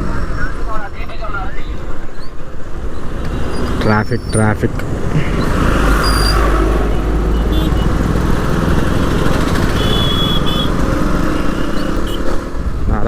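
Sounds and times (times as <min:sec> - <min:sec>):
wind and road noise: 0:00.0 - 0:13.0
motorcycle engine running: 0:06.1 - 0:12.2.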